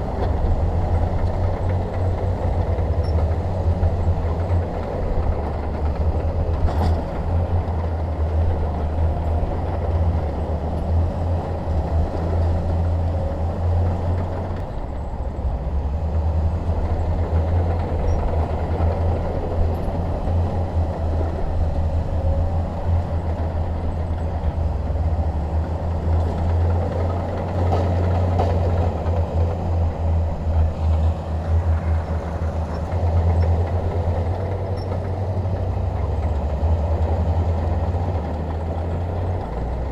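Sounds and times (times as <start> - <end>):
bulldozer diesel engine running: 0.0 - 39.9
faint clanks: 6.5 - 7.3.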